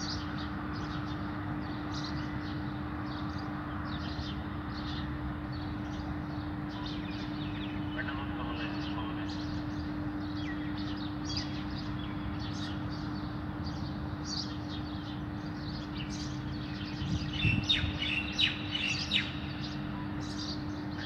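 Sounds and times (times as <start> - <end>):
small birds chirping: 0.0 - 21.0
steady low hum: 0.0 - 21.0.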